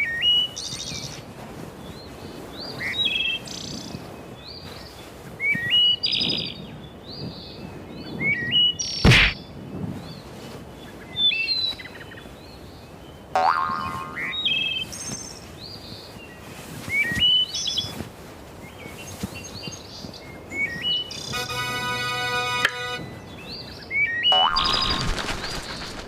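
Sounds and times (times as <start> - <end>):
sharp knock: 9.1 - 9.4.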